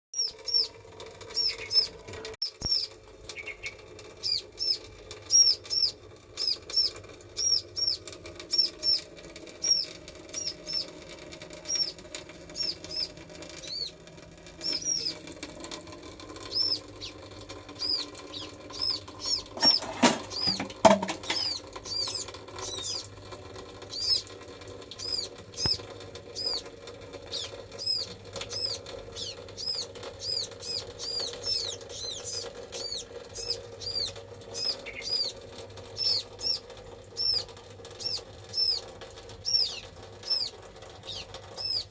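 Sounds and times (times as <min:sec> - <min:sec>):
high-pitched chirping calls: 0:00.2 - 0:14.0, 0:14.6 - 0:15.5, 0:16.4 - 0:23.1, 0:23.8 - 0:24.3, 0:24.9 - 0:41.9
sharp knocks: 0:19.6 - 0:21.6.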